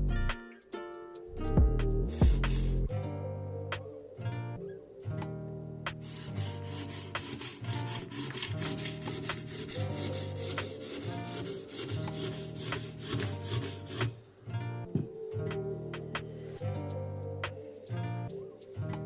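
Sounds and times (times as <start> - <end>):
guitar music: 0.0 - 19.0
knife scraping on sharpening stone: 6.1 - 14.2.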